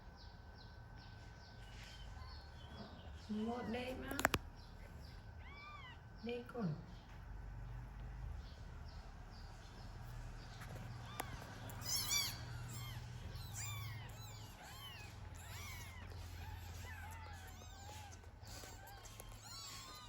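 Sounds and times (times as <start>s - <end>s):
kitten mewing: 11.0s - 20.0s.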